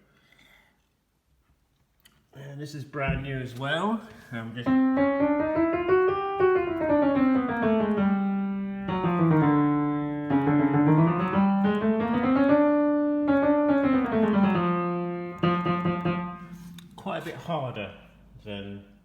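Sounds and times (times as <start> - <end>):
upright piano playing: 4.4 - 18.3.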